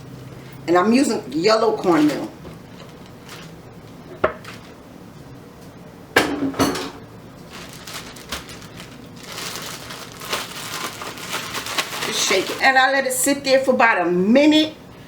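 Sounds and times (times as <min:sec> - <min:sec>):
bowl and utensils clinking: 0:06.2 - 0:07.0.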